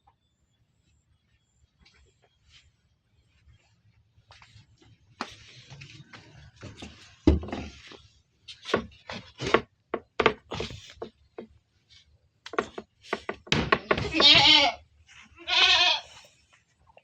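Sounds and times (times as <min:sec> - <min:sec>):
goats knocking in pen: 0:12.5 - 0:14.6.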